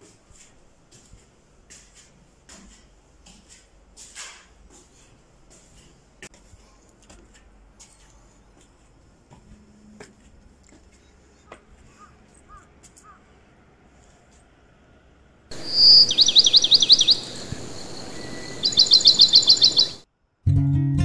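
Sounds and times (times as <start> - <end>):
outdoor hiss: 15.5 - 20.0
songbird singing: 15.5 - 20.0.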